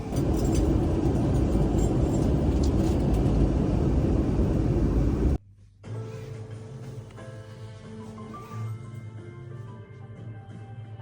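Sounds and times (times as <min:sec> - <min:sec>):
moving vehicle rumble: 0:00.0 - 0:05.4.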